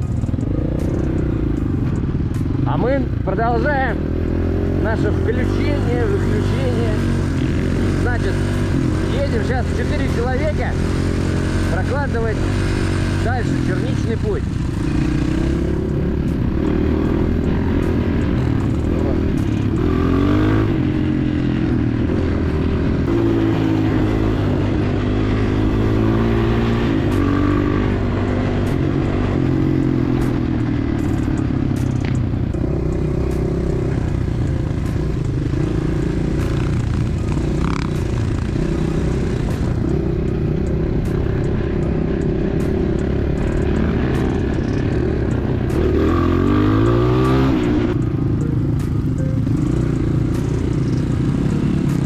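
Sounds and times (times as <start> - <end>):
motorbike engine revving: 0.0 - 52.0.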